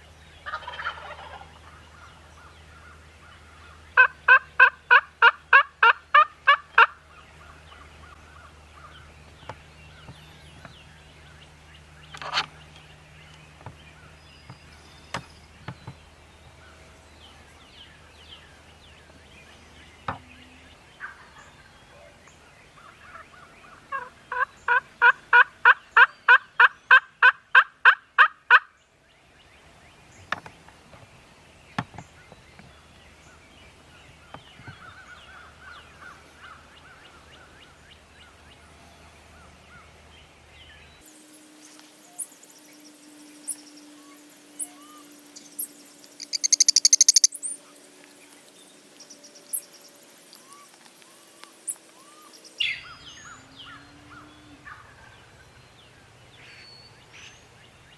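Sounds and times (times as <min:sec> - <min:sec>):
turkey yelping: 0:00.5 - 0:01.8, 0:04.0 - 0:07.0, 0:46.2 - 0:47.3
high-pitched trill: 0:41.1 - 0:47.7.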